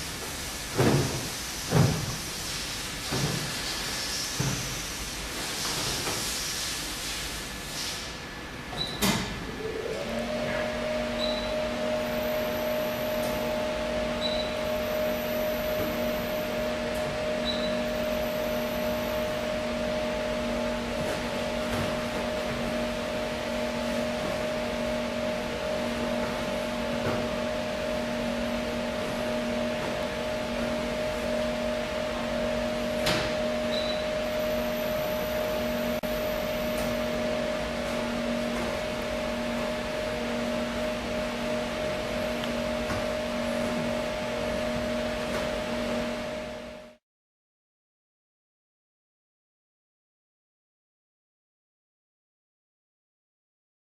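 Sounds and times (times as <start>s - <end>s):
steady machine hum: 6.8s - 47.0s.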